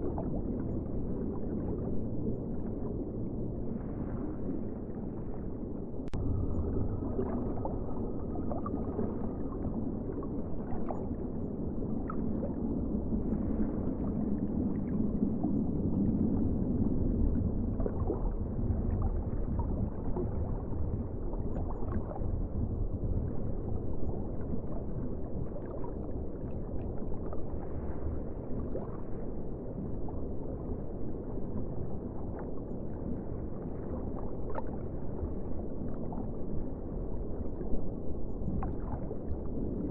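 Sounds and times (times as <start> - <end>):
seawater rushing and gurgling: 0.0 - 39.9.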